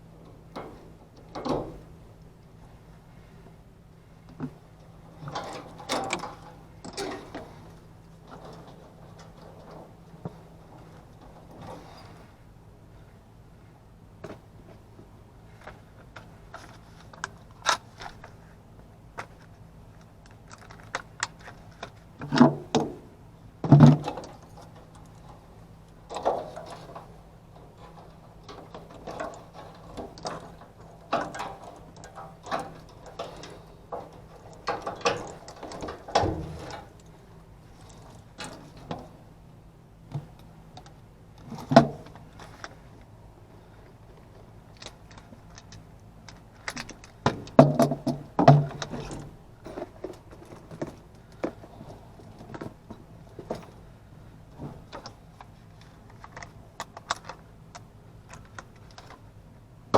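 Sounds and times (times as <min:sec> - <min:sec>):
metal tools clinking and rattling: 0:26.0 - 0:39.0.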